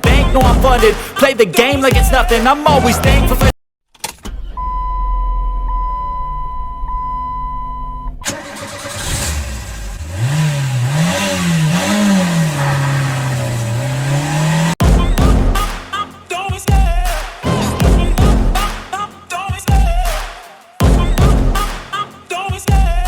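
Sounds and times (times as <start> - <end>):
engine idling and revving: 8.2 - 15.8.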